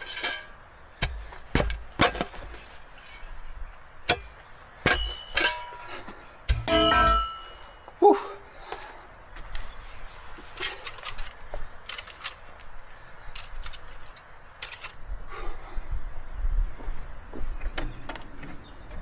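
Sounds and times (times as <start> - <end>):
metal clanging: 0.0 - 3.4, 4.0 - 7.9, 10.6 - 12.5, 13.4 - 15.0.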